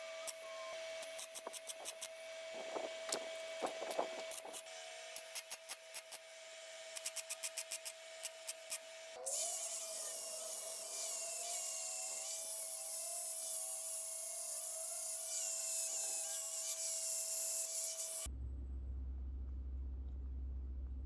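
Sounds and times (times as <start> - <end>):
grinding disc on steel: 0.3 - 4.7
low hum: 18.3 - 21.0.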